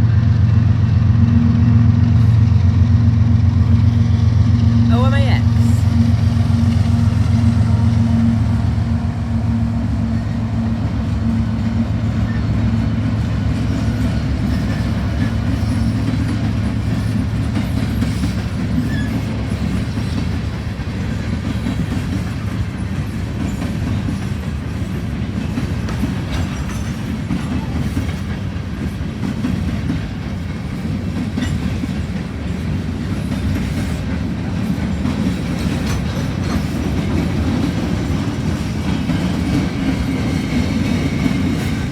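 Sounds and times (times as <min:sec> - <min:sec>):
diesel locomotive engines humming: 0:00.0 - 0:41.9
railcars rumbling past: 0:00.0 - 0:41.9
wheel clatter over rail joints: 0:11.2 - 0:41.9.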